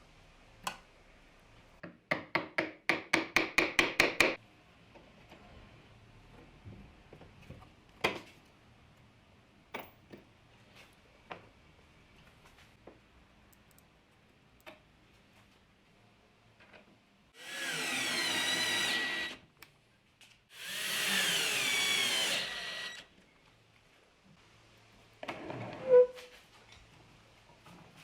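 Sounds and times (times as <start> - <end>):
power drill running: 17.4 - 19.4, 20.6 - 23.1.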